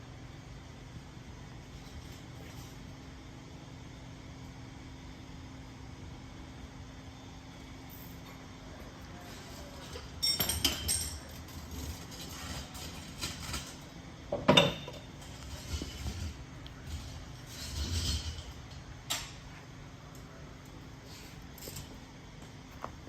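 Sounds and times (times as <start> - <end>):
steady low hum: 0.0 - 23.0
clinks and knocks: 10.2 - 13.7.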